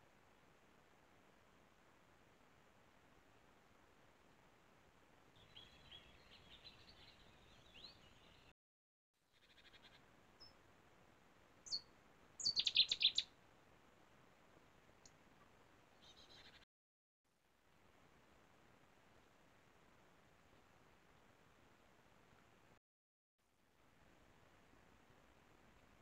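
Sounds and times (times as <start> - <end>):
faint steady hiss: 0.0 - 8.5, 9.9 - 16.4, 17.3 - 22.8, 23.4 - 26.0
wild birds calling: 12.4 - 13.2.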